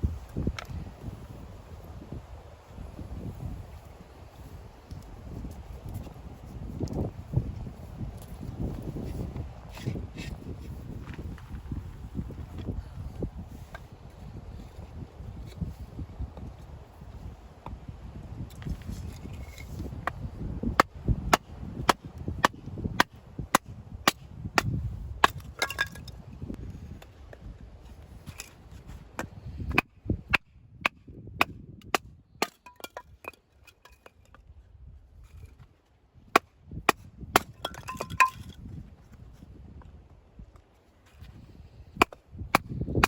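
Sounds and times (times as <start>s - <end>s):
hatchet chopping firewood: 19.5s - 26.1s, 28.3s - 34.4s, 36.3s - 38.6s, 41.9s - 43.0s.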